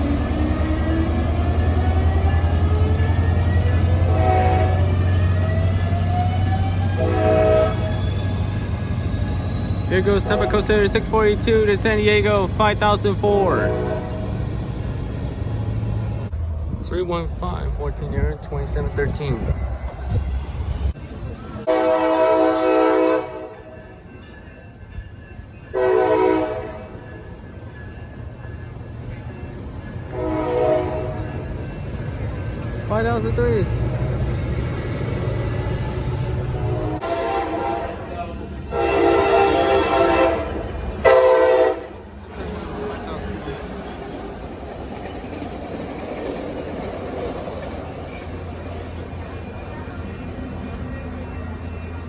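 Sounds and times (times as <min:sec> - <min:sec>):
diesel locomotive droning: 0:00.0 - 0:52.0
train horn blasts: 0:03.7 - 0:05.2, 0:06.9 - 0:08.0, 0:10.2 - 0:10.8, 0:13.4 - 0:14.4, 0:21.7 - 0:23.7, 0:25.7 - 0:27.0, 0:30.1 - 0:31.5, 0:36.3 - 0:42.0.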